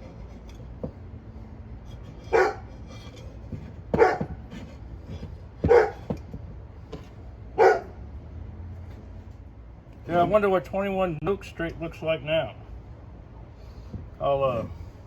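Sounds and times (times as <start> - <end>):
dog barking: 2.3 - 2.7, 3.9 - 4.4, 5.6 - 6.1, 7.6 - 8.0.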